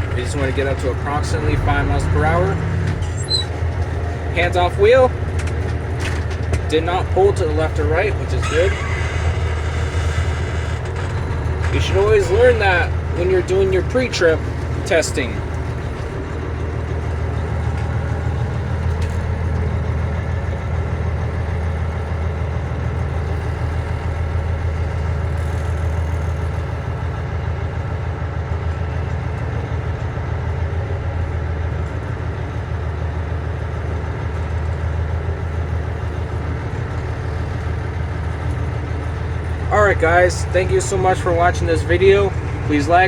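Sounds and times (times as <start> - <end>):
diesel engine rumbling: 0.0 - 43.0.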